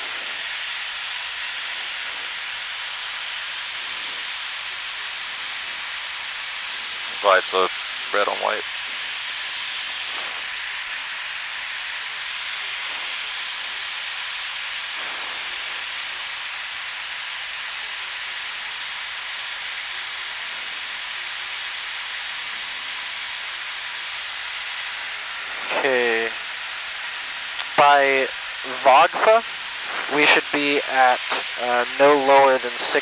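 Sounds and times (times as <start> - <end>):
aircraft cabin hiss: 7.2 - 8.4, 25.6 - 26.4, 27.6 - 33.0.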